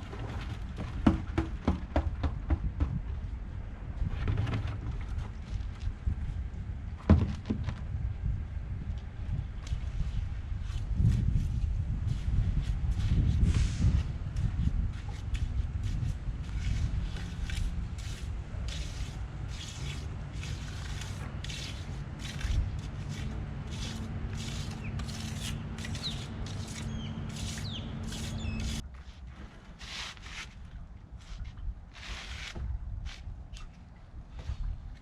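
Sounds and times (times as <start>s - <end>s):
short scraping strokes: 15.1s - 28.8s.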